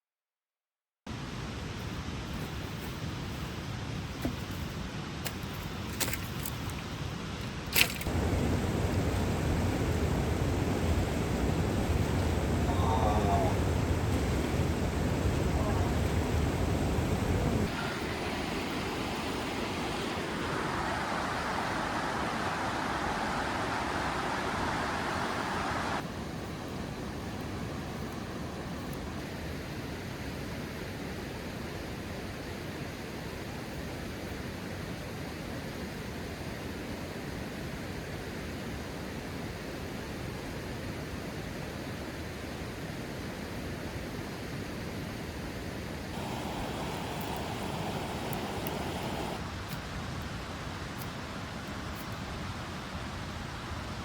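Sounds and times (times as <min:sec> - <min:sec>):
steady outdoor rushing noise: 0:07.7 - 0:26.2, 0:46.1 - 0:49.5.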